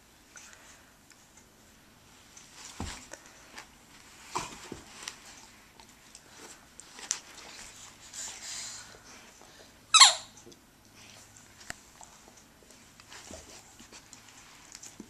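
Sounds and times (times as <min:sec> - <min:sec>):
puppy thumping and scuffling: 0:02.5 - 0:05.4.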